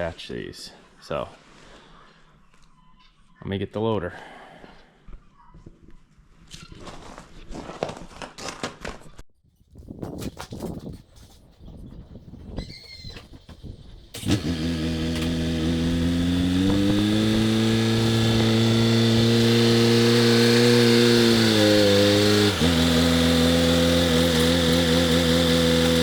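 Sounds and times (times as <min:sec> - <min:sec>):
loader engine running: 0:14.0 - 0:26.0.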